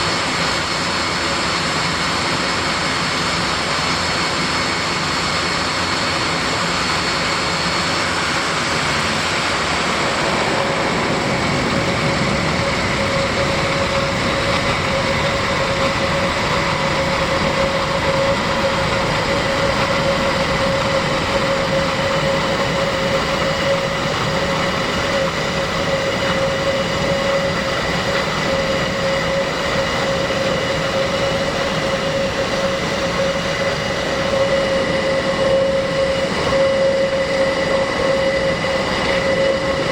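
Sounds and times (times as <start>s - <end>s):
turboprop engines running: 0.0s - 39.9s.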